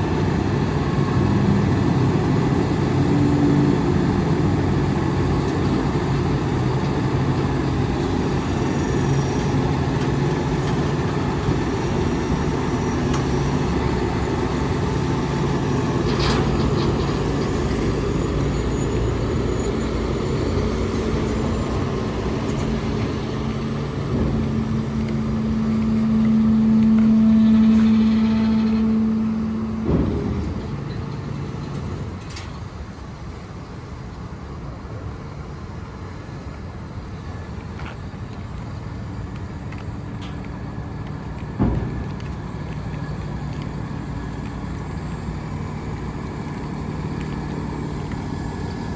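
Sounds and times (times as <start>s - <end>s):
diesel engine running: 0.0s - 48.9s
low hum: 6.9s - 32.7s.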